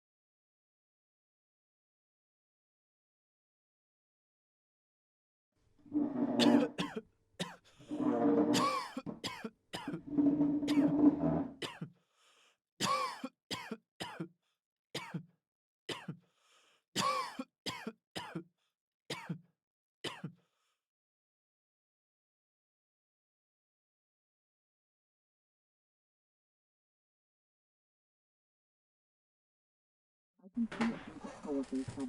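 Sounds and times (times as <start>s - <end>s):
person clearing throat: 6.4s - 7.6s, 8.5s - 10.0s, 11.6s - 11.9s, 12.8s - 14.3s, 15.0s - 15.2s, 15.9s - 16.2s, 17.0s - 18.4s, 19.1s - 19.4s, 20.1s - 20.3s
person coughing: 6.4s - 7.6s, 8.6s - 10.0s, 11.6s - 11.9s, 12.8s - 14.3s, 15.0s - 15.2s, 17.0s - 18.4s.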